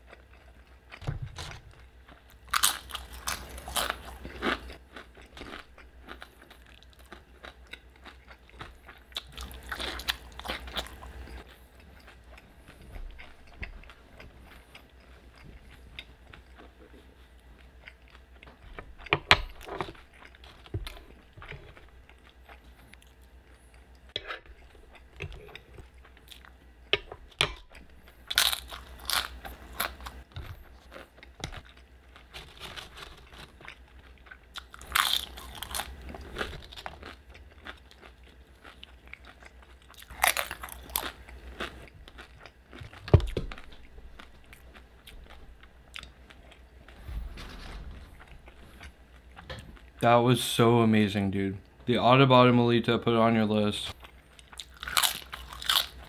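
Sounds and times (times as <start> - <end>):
chewing and crunching chips: 0.0 - 50.5, 53.9 - 56.0.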